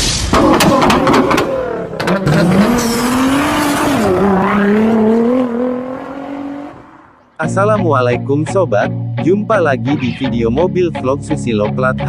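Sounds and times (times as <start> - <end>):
sharp cracks: 0.0 - 2.4
car engine accelerating hard: 0.3 - 7.4.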